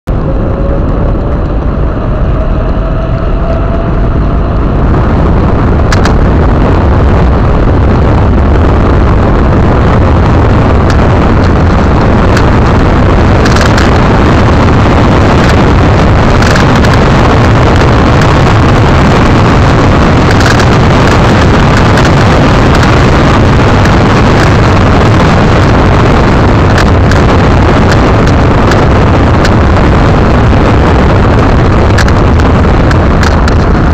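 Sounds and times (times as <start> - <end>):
faint rising whine: 0.0 - 33.9
tyre and road noise: 0.0 - 33.9
wind buffeting microphone: 0.1 - 33.9
sharp clicks: 5.9 - 6.2.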